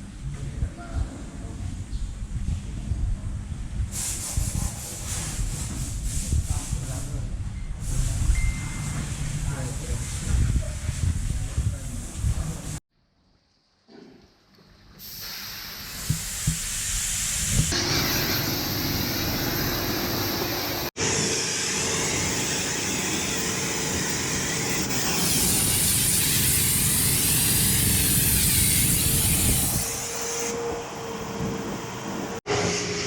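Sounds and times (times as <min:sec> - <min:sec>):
pressure washer spraying: 0:15.0 - 0:20.9, 0:22.2 - 0:30.5.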